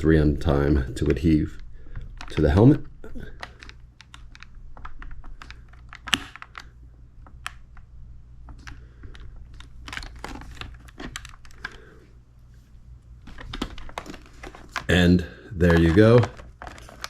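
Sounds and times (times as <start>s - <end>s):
fingers tapping plastic helmet: 1.9s - 11.8s.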